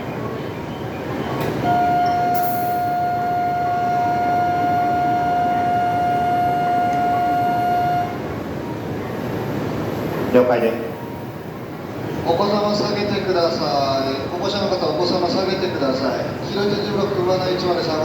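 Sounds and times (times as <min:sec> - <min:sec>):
platform hum: 0:00.1 - 0:12.3
electronic warning buzzer tone: 0:01.6 - 0:08.2.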